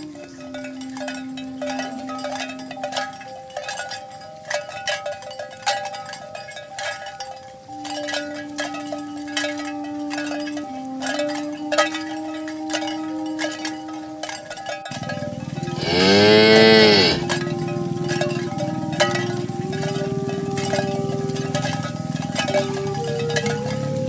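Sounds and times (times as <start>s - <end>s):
cowbells clanking: 0.0s - 24.0s
low steady tone: 0.0s - 24.0s.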